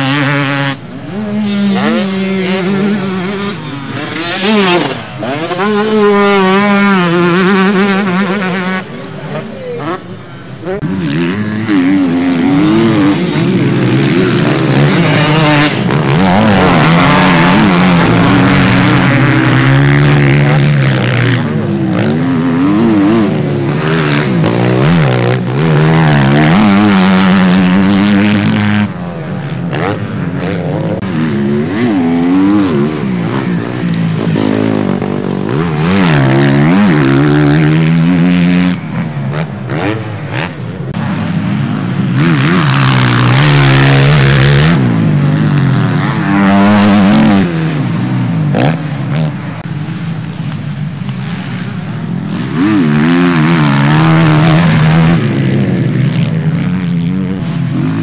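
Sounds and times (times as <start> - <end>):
motocross bike engines revving: 0.0 - 58.0.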